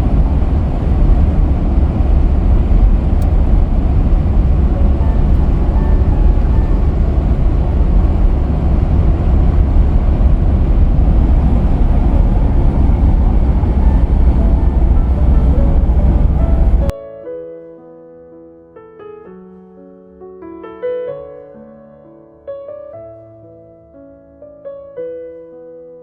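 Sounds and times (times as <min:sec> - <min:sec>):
road and wind noise: 0:00.0 - 0:16.9
van engine rumble: 0:00.0 - 0:16.9
faint music: 0:02.6 - 0:26.0.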